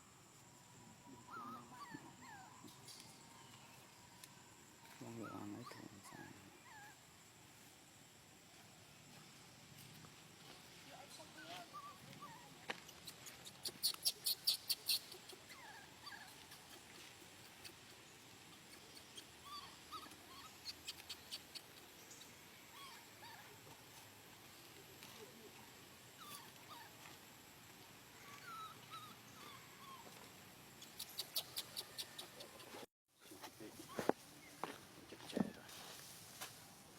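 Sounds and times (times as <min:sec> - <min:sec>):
monkey squeaks and chirps: 0:11.3 - 0:23.5, 0:30.8 - 0:32.8.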